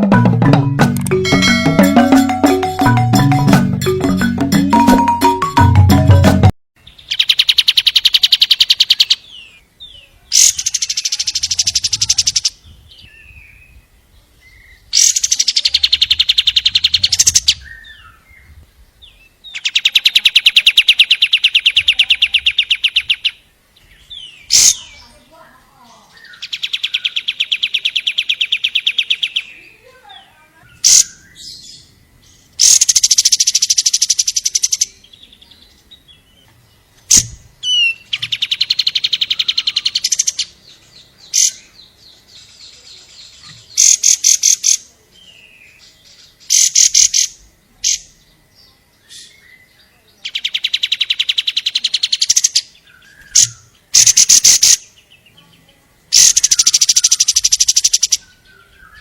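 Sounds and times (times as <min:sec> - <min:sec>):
bird trilling: 0:30.7 - 0:31.9, 0:32.6 - 0:35.0, 0:37.1 - 0:40.6, 0:50.3 - 0:54.9, 0:56.1 - 0:59.0.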